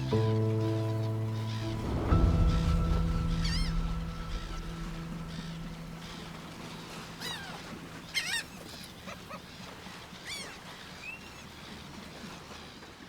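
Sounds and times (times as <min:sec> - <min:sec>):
natural ambience: 0:00.0 - 0:13.0
wild animal calls: 0:06.9 - 0:10.7.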